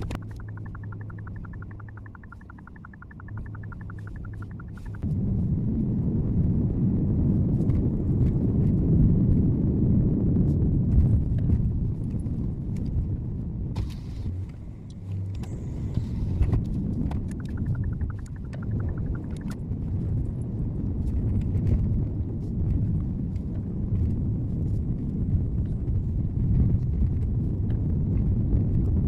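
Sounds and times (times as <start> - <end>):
fast even ticking: 0.0 - 5.0, 17.3 - 19.6
car road and engine noise: 11.6 - 28.2.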